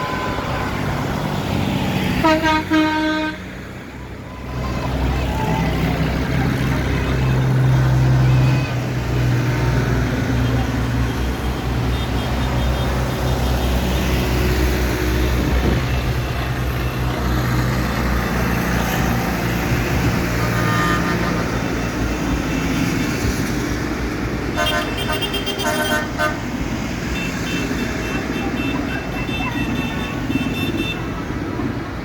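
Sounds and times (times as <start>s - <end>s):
tractor engines passing: 0.0s - 32.0s.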